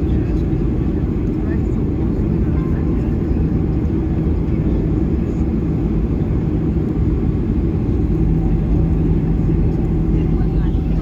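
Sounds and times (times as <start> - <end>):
jet engines idling rumble: 0.0 - 11.0
steady low hum: 5.0 - 11.0.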